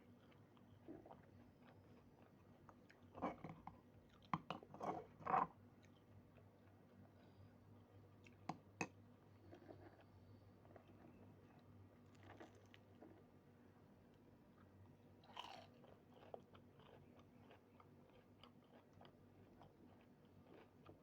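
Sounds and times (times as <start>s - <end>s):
chewing and biting: 15.3s - 21.0s.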